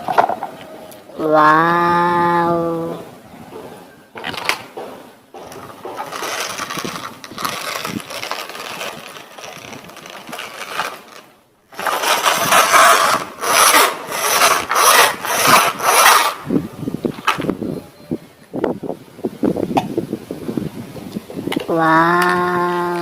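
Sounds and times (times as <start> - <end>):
plastic toy vehicles scraping and rattling: 0.0 - 0.7, 4.2 - 4.7, 5.4 - 16.4.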